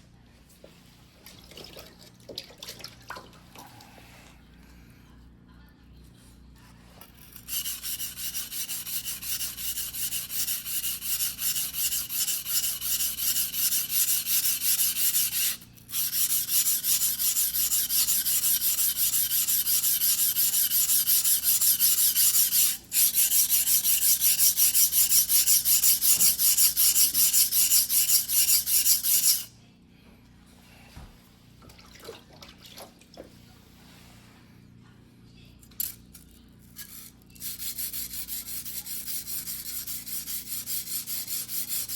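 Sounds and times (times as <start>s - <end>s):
knife scraping on whetstone: 7.3s - 29.5s.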